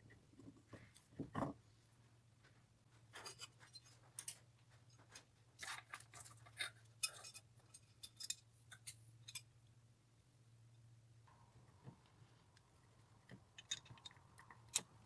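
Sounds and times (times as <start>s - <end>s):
faint steady hum: 0.0s - 15.0s
scrapes and taps on small parts: 2.4s - 9.5s, 13.3s - 14.9s.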